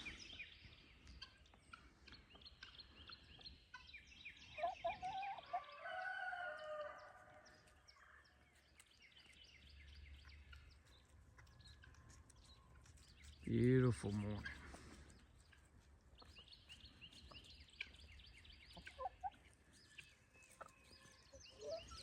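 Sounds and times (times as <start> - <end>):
songbirds chirping: 0.0 - 22.0
rooster crowing: 5.4 - 7.3.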